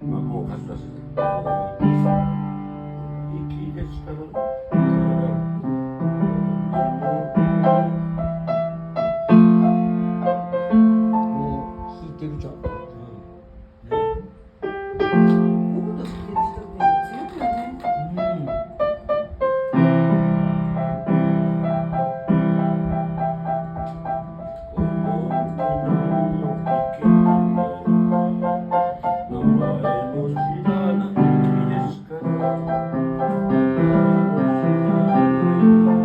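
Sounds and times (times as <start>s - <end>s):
piano playing: 0.0s - 36.0s.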